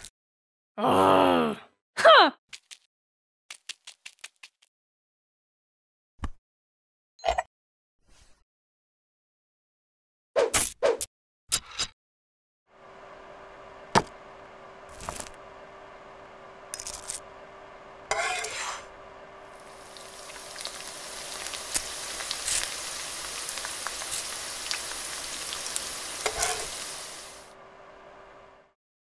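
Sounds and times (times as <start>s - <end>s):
patty sizzling in a frying pan: 18.0s - 27.6s
spatula scraping a pan: 18.1s - 18.9s, 26.2s - 26.8s.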